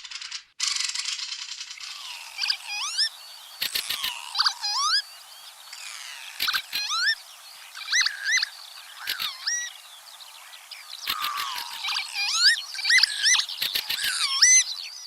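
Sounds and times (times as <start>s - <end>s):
sharp clicks: 3.6s - 4.2s, 6.4s - 6.9s, 11.0s - 11.7s, 13.6s - 14.2s.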